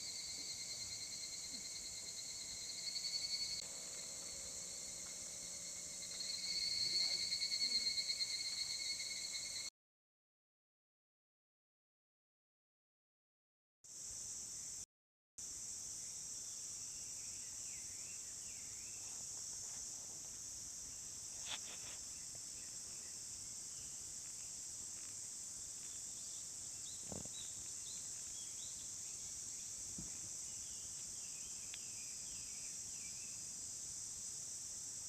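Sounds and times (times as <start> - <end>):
insects chirring: 0.0 - 9.7, 15.4 - 35.0
short chirping calls: 6.0 - 9.7.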